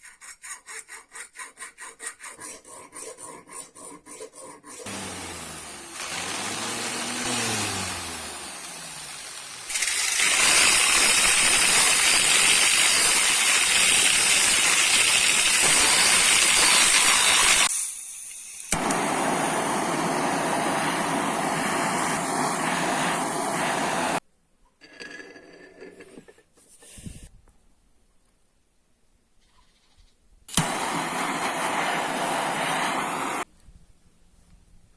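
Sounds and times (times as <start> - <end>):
power tool scouring metal: 4.8 - 17.7.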